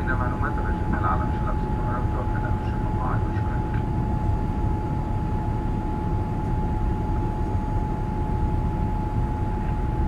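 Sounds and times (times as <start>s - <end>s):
jet engines low rumble: 0.0s - 10.0s
thin constant whine: 0.0s - 10.0s.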